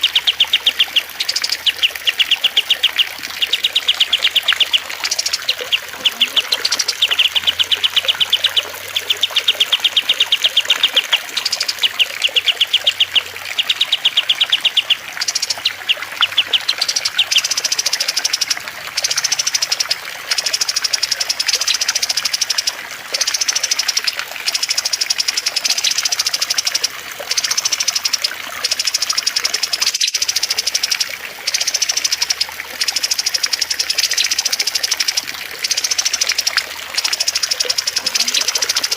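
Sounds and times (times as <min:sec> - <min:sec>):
songbirds singing trilled phrases: 0:00.0 - 0:38.9
trickling water: 0:00.0 - 0:38.9.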